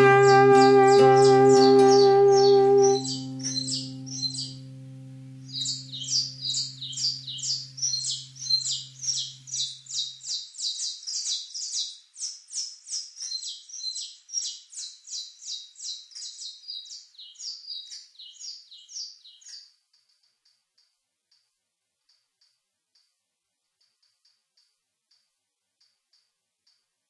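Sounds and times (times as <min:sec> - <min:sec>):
held low musical note: 0:00.0 - 0:09.4
bird chirping: 0:00.0 - 0:19.8.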